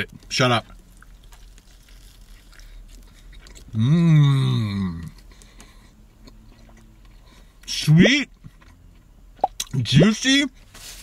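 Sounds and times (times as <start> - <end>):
man chewing food: 0.8 - 3.8, 5.0 - 7.4
man humming mmm: 3.7 - 5.2.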